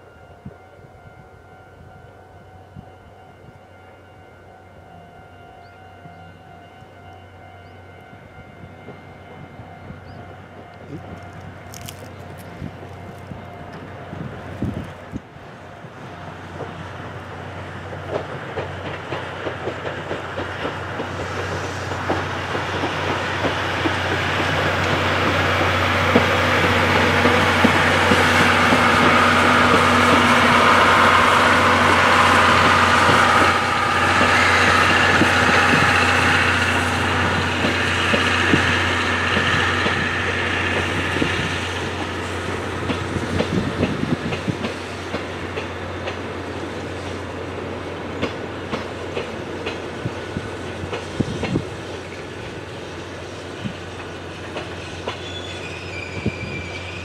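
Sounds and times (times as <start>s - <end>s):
wheels clacking over rail joints: 10.6s - 15.3s, 16.4s - 57.0s
high squealing tones: 55.2s - 57.0s.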